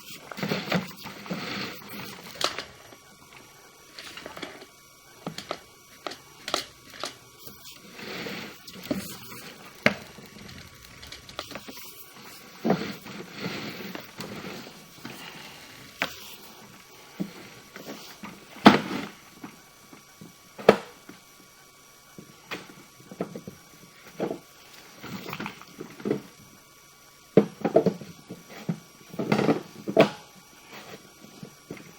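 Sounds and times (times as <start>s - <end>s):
cable scraping through pipe: 7.4s - 16.5s.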